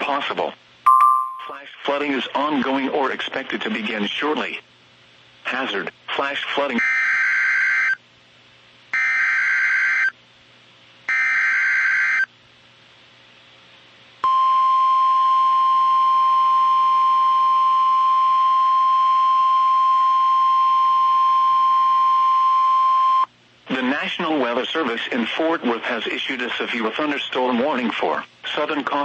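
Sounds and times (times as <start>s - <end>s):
steady warning alarm tone: 9.0s - 10.1s, 11.1s - 12.3s.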